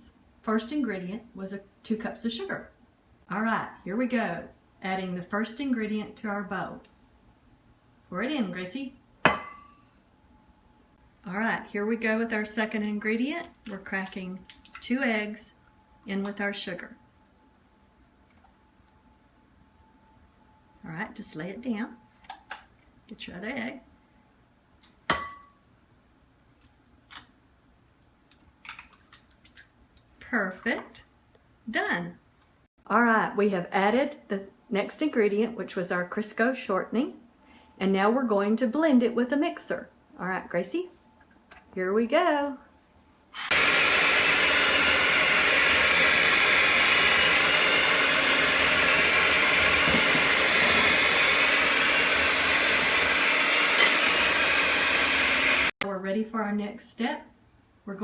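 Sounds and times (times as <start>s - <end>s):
electric mixer running: 43.5s - 55.7s.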